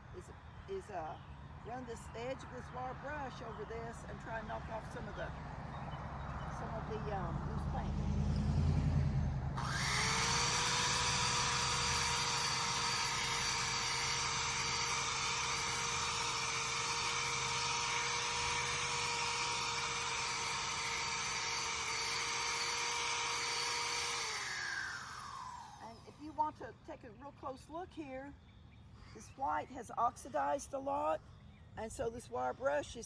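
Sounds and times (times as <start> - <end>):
electric drill whining: 9.6 - 26.2.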